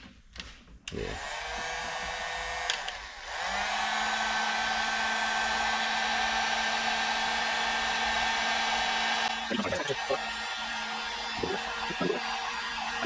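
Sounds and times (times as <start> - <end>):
heat gun blowing: 0.9 - 9.4.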